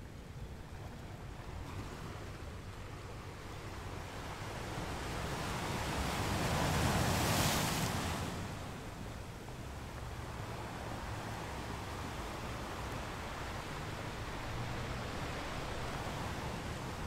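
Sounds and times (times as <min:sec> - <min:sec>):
sea waves washing: 0:03.7 - 0:17.0.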